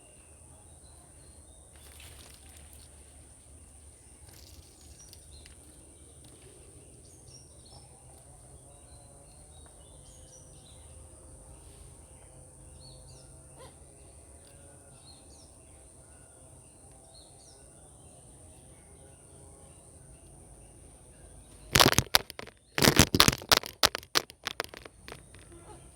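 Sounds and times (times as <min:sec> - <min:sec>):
birds chirping: 0:19.7 - 0:25.9.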